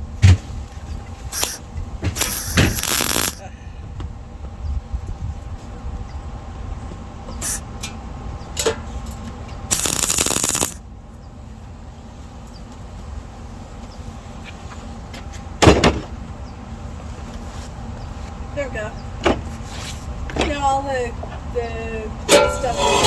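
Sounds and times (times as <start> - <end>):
welder crackling: 1.3 - 1.6, 2.2 - 3.4, 9.7 - 10.8.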